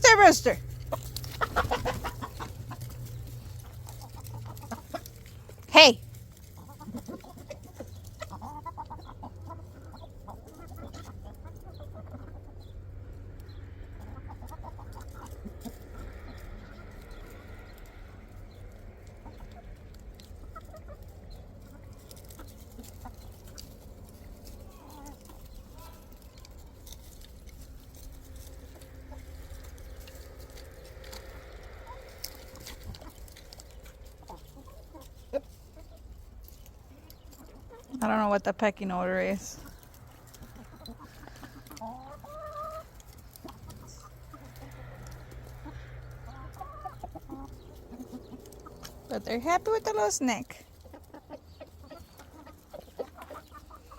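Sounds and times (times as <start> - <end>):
chickens clucking softly: 0.8 - 5.6, 6.3 - 38.0, 39.2 - 53.9
low rumble: 27.4 - 34.8.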